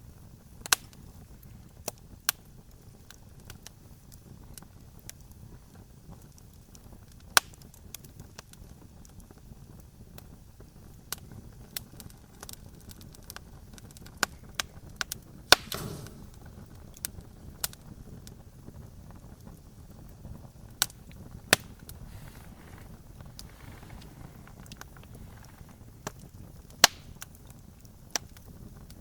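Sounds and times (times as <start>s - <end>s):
campfire crackling pops and snaps: 0.0s - 29.0s
low rumble of burning: 0.0s - 29.0s
short hiss from fire: 11.2s - 18.3s, 20.8s - 28.5s.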